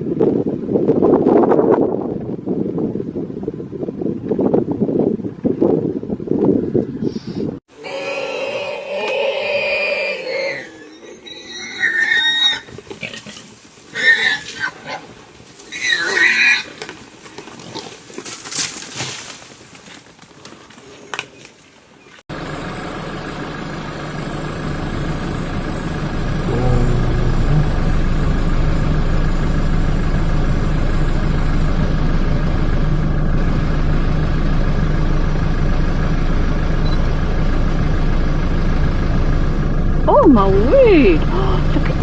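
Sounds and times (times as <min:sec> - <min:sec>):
vehicle engine idling: 0:22.3 - 0:42.0.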